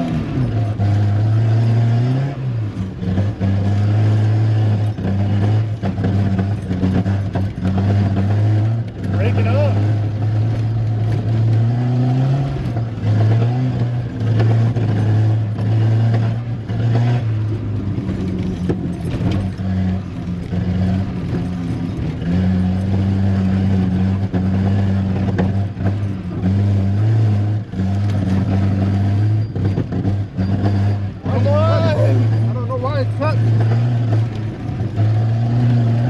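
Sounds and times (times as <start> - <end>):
car engine under load: 0.0 - 36.0.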